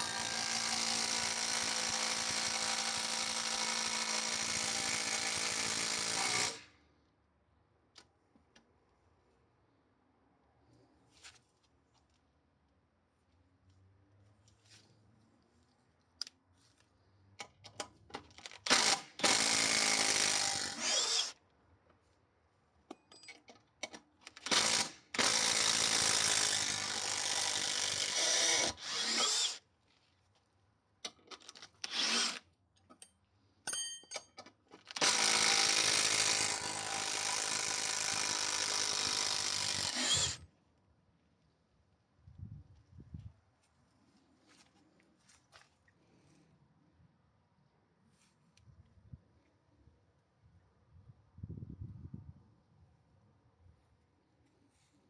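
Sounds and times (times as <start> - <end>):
impact wrench driving screws: 31.5 - 32.4, 34.0 - 40.4.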